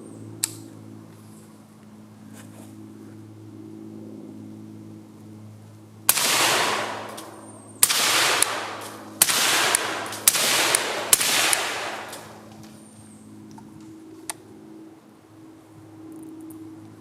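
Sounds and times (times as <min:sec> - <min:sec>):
suppressed rifle shots: 0:06.1 - 0:12.5.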